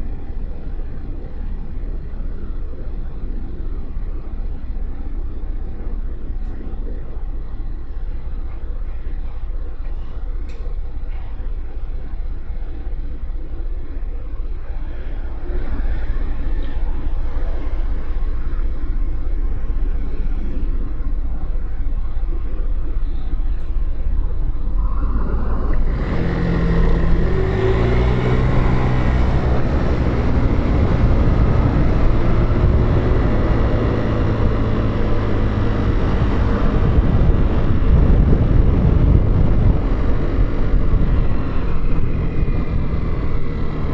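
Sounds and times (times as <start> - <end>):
wind noise: 0.0 - 43.9
motorcycle engine accelerating: 25.2 - 43.9.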